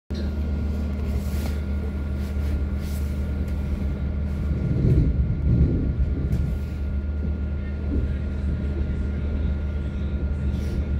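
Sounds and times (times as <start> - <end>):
thin high hum: 0.1 - 10.9
train carriage rumbling on track: 0.1 - 10.9.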